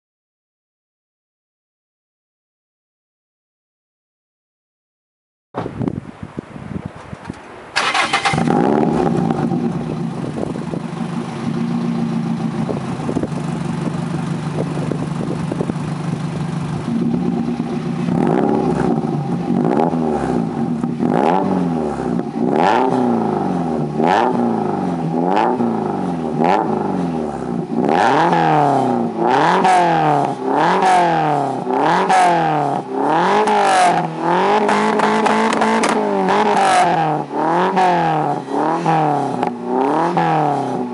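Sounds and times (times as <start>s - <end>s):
car engine starting: 7.2s - 40.9s
car engine idling: 7.8s - 39.9s
car engine revving: 7.8s - 40.9s.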